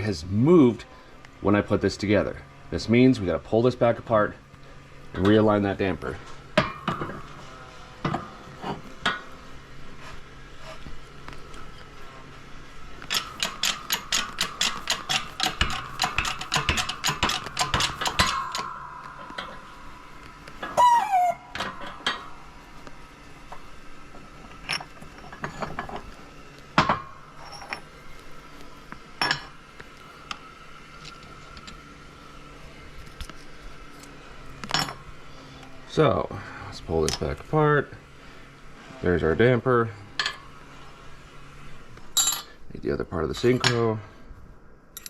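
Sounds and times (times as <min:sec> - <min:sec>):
metal parts clinking: 0:06.6 - 0:09.2, 0:13.0 - 0:22.8, 0:24.4 - 0:26.2, 0:26.8 - 0:27.9, 0:42.2 - 0:42.6
metal parts scraping: 0:13.0 - 0:23.6, 0:24.3 - 0:26.3, 0:26.9 - 0:28.2
fast metallic clicks: 0:13.1 - 0:20.8.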